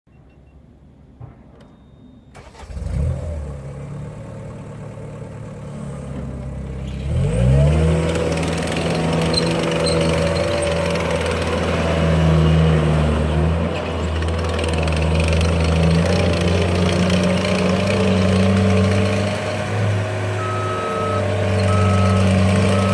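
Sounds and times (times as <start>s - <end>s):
diesel engine starting and revving: 2.3s - 22.9s.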